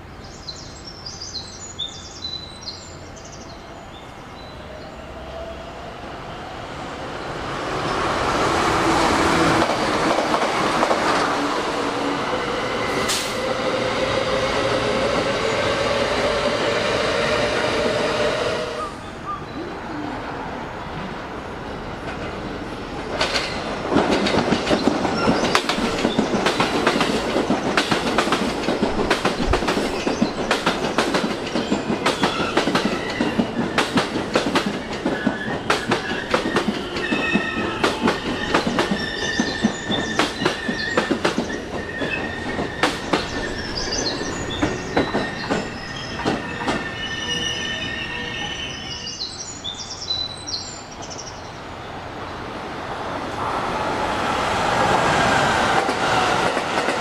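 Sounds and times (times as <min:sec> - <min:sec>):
train wheels clattering over rail joints: 0:23.1 - 0:46.9
high brake squeal: 0:35.2 - 0:49.5.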